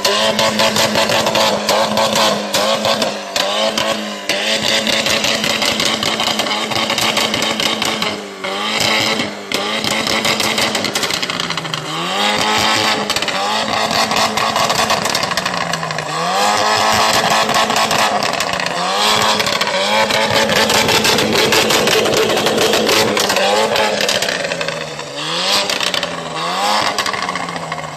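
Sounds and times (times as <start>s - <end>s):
car engine revving: 0.0s - 27.9s
exhaust crackling: 0.0s - 27.9s.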